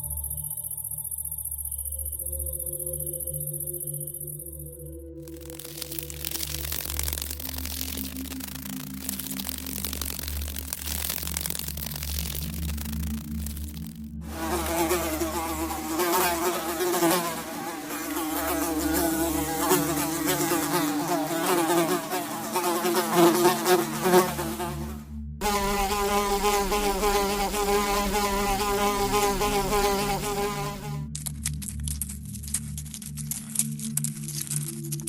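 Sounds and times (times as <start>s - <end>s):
flying insect buzzing: 5.2s - 31.1s.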